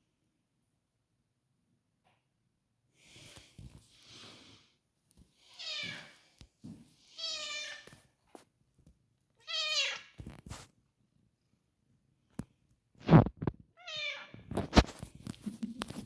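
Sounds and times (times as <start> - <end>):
cat meowing: 5.6 - 6.2, 7.2 - 7.9, 9.4 - 10.2, 13.8 - 14.5.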